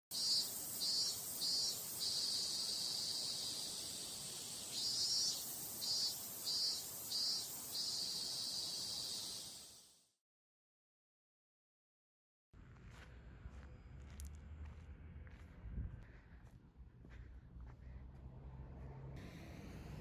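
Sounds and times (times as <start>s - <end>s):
cicadas buzzing: 0.1s - 10.0s
pulsing insect call: 0.1s - 10.0s.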